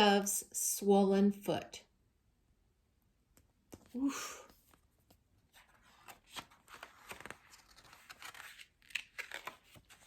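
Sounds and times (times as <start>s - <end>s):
paper pages rustling: 4.6s - 10.0s.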